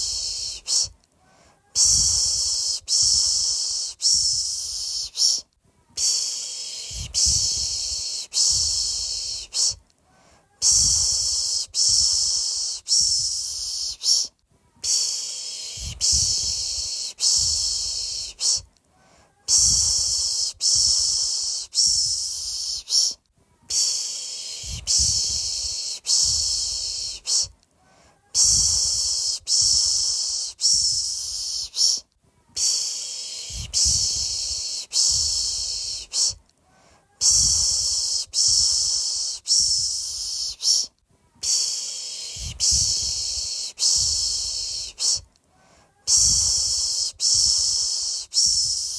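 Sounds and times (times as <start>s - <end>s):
person shushing a baby: 0.0s - 36.4s, 37.0s - 48.9s.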